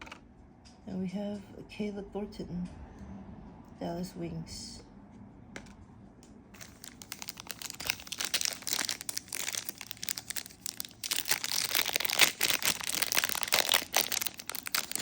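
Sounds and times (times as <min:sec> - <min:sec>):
foil wrapper crinkling: 0:06.6 - 0:15.0.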